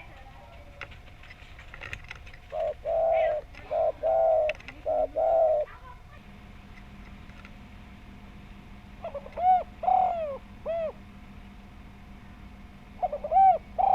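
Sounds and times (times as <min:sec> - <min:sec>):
dove cooing: 0:00.0 - 0:06.2, 0:08.9 - 0:11.2, 0:12.9 - 0:13.9.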